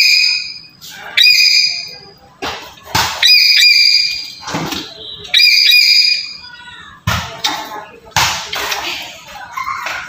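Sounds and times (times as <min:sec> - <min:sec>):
piercing whistled bird calls: 0:00.0 - 0:02.1, 0:03.2 - 0:04.5, 0:05.2 - 0:06.4.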